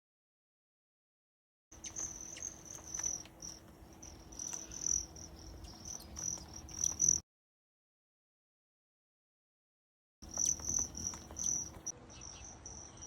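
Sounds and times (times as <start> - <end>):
crickets trilling: 1.8 - 7.2, 10.2 - 13.0
faint low hum: 1.8 - 7.2, 10.2 - 13.0.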